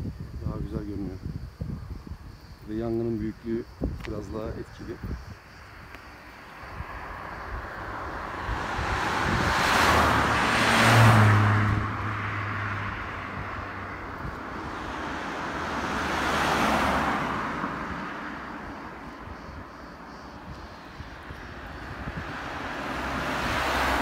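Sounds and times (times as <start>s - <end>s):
vehicle tyre and engine noise: 0.0s - 24.0s
vehicle passing with low engine hum: 5.0s - 24.0s.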